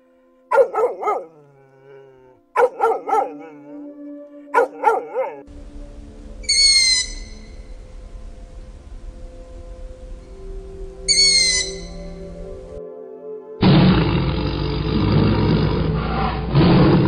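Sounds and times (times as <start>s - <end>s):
dog barking: 0.5s - 3.8s, 4.5s - 5.5s
high whistled animal call: 5.5s - 12.8s
steady hiss: 5.5s - 12.8s.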